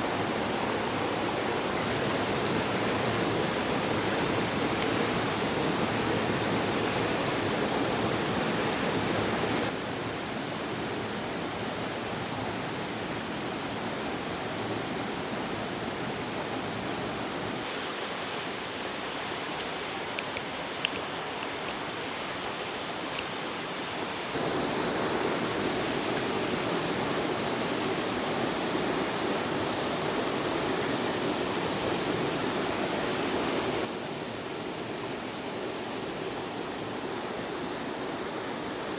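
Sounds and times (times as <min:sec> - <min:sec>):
river flowing: 0:00.0 - 0:10.8, 0:12.3 - 0:38.9
faint clicks: 0:01.9 - 0:09.7.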